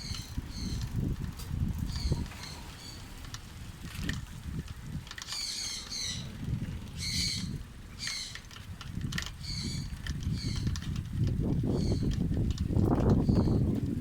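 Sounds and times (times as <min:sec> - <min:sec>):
bird chirping: 0:00.0 - 0:00.9, 0:01.9 - 0:03.1, 0:05.3 - 0:06.4, 0:07.0 - 0:08.4
wind rumble on microphone: 0:00.0 - 0:14.0.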